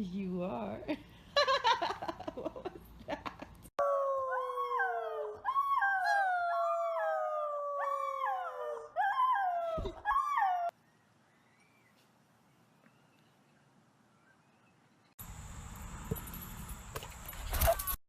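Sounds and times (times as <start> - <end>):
dogs howling: 3.8 - 10.7.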